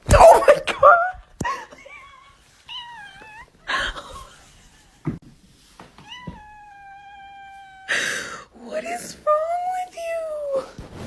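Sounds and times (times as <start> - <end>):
cat meowing: 2.6 - 4.3, 6.0 - 8.5.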